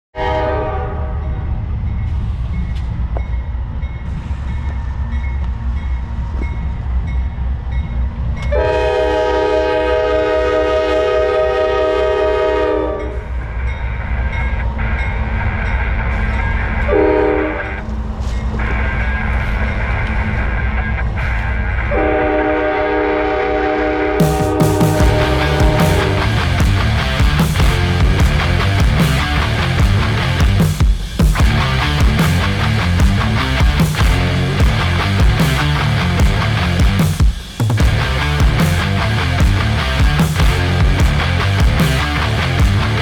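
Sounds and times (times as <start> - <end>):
locomotive horn blasts: 0.2 - 1.2, 8.6 - 13.2, 16.9 - 17.6, 22.0 - 26.2
freight train rumbling past: 0.2 - 43.0.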